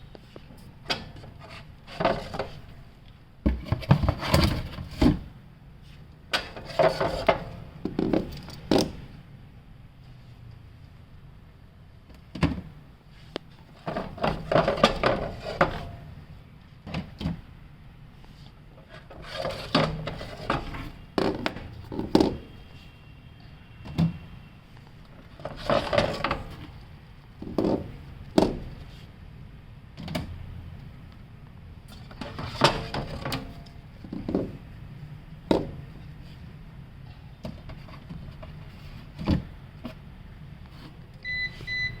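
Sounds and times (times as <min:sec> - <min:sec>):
low steady hum: 0:00.0 - 0:42.0
short electronic beep: 0:41.2 - 0:42.0.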